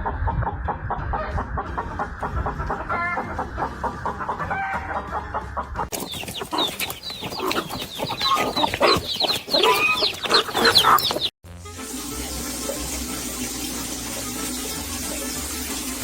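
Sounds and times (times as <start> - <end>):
birds clucking and calling: 0.0 - 11.3
high falling chirps: 5.9 - 11.3.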